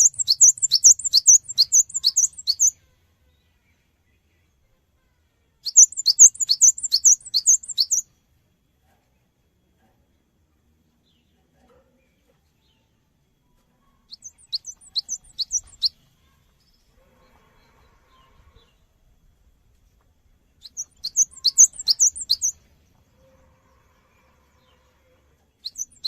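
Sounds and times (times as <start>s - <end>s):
bird singing high sharp notes: 0.0s - 2.7s, 5.7s - 8.0s, 14.1s - 15.9s, 20.6s - 22.5s, 25.7s - 26.0s.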